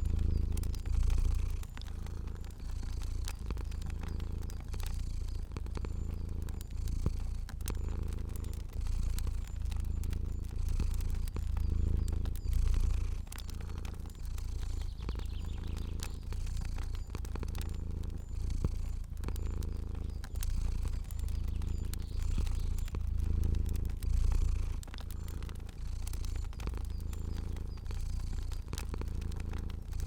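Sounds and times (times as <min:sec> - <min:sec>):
cat purring: 0:00.0 - 0:30.0
fire crackling: 0:00.0 - 0:30.0.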